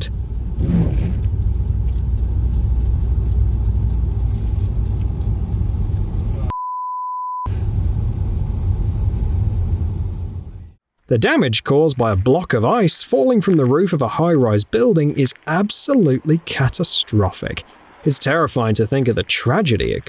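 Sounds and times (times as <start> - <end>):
vehicle rumble: 0.0 - 6.5, 7.5 - 10.8
censor beep: 6.5 - 7.5.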